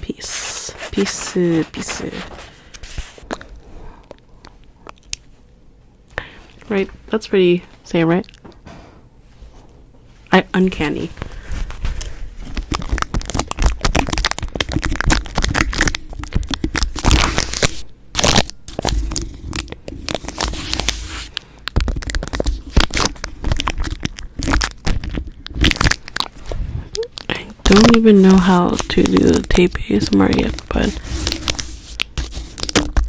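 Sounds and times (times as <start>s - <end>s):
packaging crackling and tearing: 11.3s - 33.0s.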